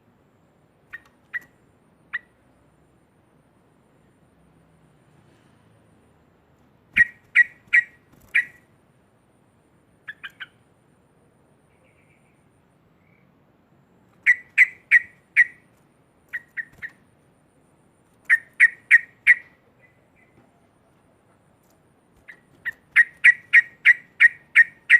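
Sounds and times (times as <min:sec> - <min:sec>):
bird giving sharp calls: 0:06.9 - 0:08.7, 0:10.0 - 0:10.6, 0:14.2 - 0:15.7, 0:16.3 - 0:17.0, 0:18.3 - 0:20.4, 0:22.2 - 0:24.9.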